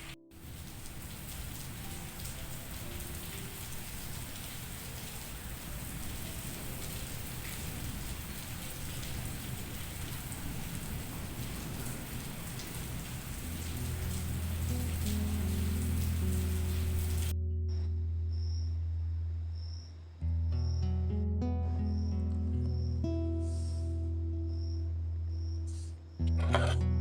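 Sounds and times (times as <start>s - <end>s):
steady rainfall hiss: 0.0s - 17.3s.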